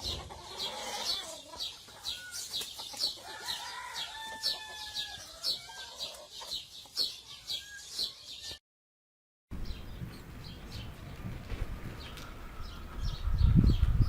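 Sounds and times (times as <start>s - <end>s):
chickens clucking: 0.0s - 8.5s.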